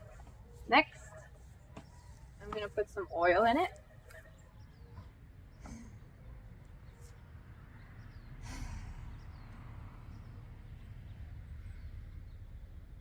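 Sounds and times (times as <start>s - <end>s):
low outdoor rumble: 0.0s - 13.0s
sharp sigh-like exhale: 8.4s - 9.0s.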